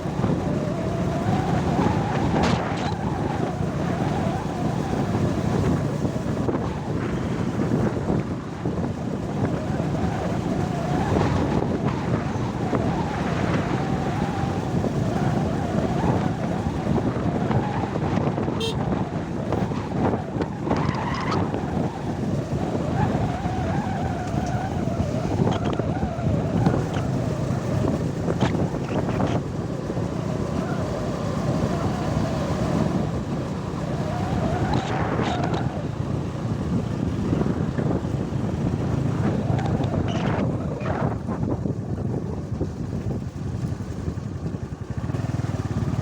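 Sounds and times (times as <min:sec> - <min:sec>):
wind buffeting microphone: 0:00.0 - 0:46.0
vehicle engine running: 0:40.9 - 0:46.0.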